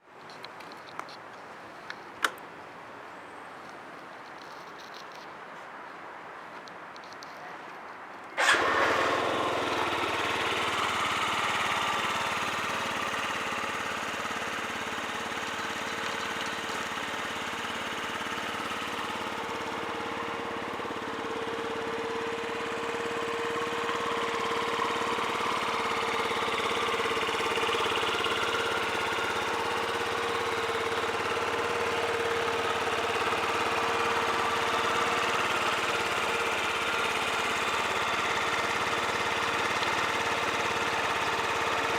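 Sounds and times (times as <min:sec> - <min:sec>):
scooter engine idling: 0:08.4 - 0:41.9.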